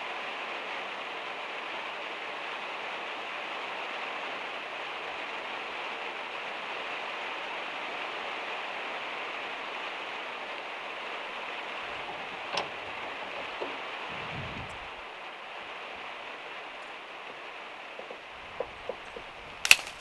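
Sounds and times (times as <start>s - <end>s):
heavy rain on a metal roof: 0.0s - 14.1s
brief low rumble: 14.0s - 15.0s
sharp click: 18.0s - 20.0s.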